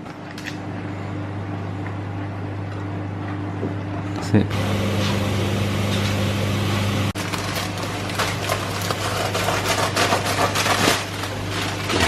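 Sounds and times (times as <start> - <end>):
low hum: 4.4 - 8.9.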